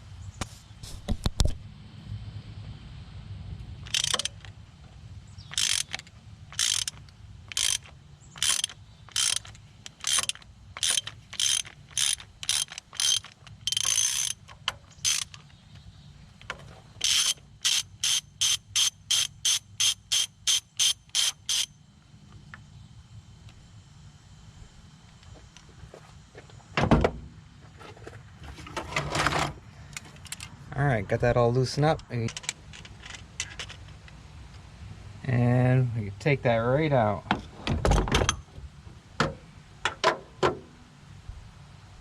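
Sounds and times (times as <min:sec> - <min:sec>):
ratchet wrench clicking: 0:03.8 - 0:04.5, 0:05.4 - 0:15.5, 0:17.0 - 0:21.7, 0:32.0 - 0:34.0.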